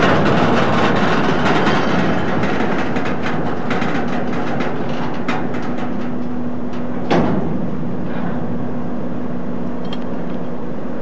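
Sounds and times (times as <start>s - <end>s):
loud clank: 0.0s - 9.1s
freight cars rolling over rails: 0.0s - 11.0s
steady hum: 0.0s - 11.0s.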